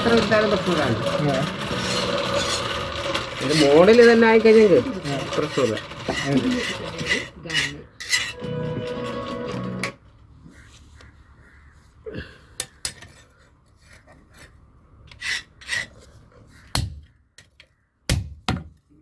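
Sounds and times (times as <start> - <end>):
rasping scrapes: 0.0 - 9.9, 13.8 - 16.3
metal tools clinking: 0.0 - 10.0.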